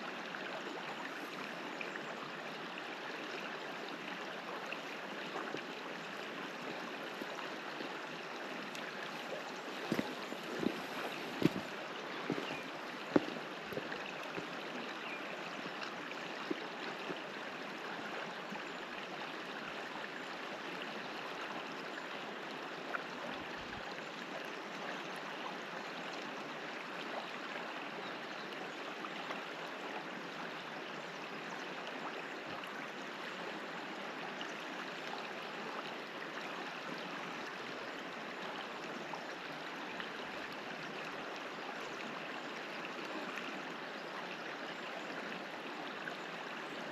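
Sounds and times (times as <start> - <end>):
river water rushing: 3.9 - 16.2.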